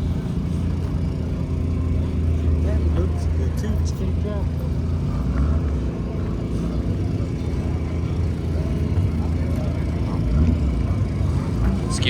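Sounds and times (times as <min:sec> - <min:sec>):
faint distant voices: 0:00.0 - 0:12.0
low outdoor rumble: 0:00.0 - 0:12.0.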